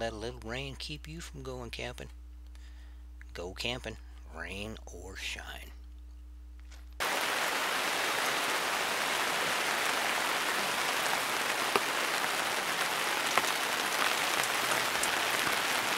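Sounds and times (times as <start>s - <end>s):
steady rain falling: 7.0s - 15.9s.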